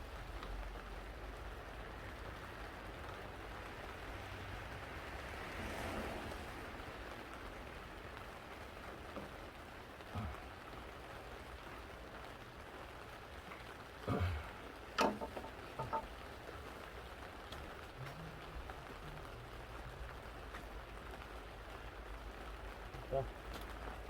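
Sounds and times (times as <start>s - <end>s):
metallic clinks and knocks: 15.0s - 16.1s.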